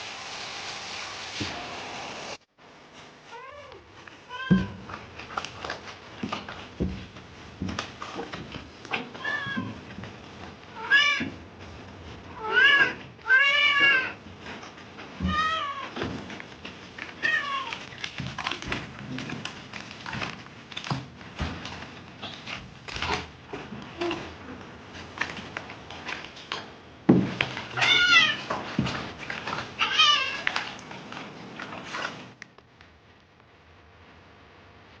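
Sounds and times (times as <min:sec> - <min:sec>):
cat meowing: 0:09.2 - 0:09.8, 0:10.8 - 0:11.3, 0:12.4 - 0:14.2, 0:27.8 - 0:28.5, 0:29.8 - 0:30.6.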